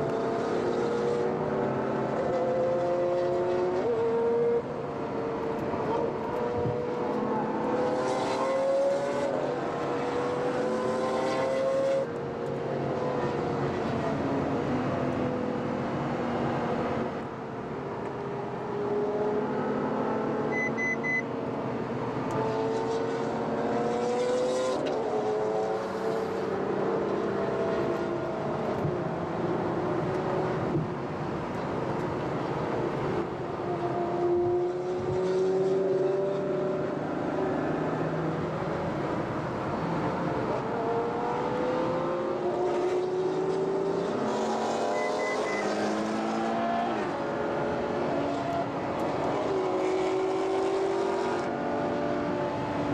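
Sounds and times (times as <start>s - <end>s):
short triple beep: 20.5s - 21.3s, 44.9s - 45.7s.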